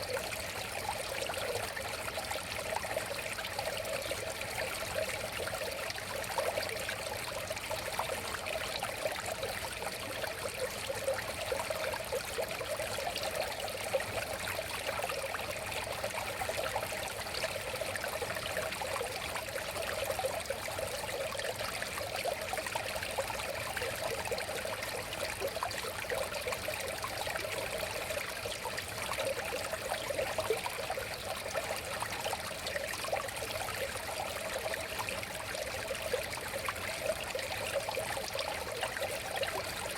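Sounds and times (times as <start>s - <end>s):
river water babbling: 0.0s - 39.9s.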